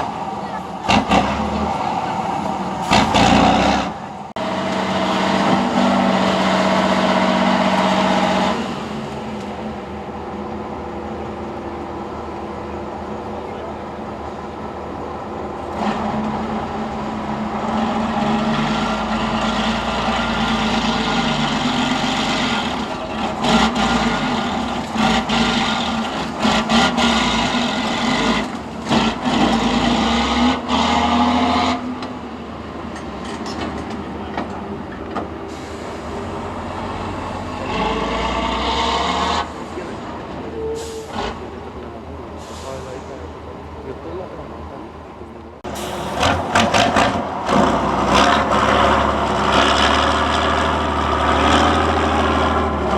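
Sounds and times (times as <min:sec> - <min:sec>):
truck engine working under load: 0:00.0 - 0:52.9
sharp knocks and bangs: 0:00.8 - 0:03.9.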